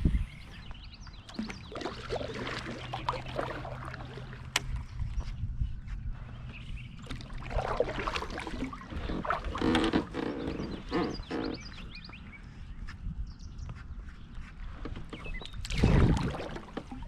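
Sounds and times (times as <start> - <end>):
birds chirping: 0.0 - 17.0
kayak on water: 0.0 - 17.0.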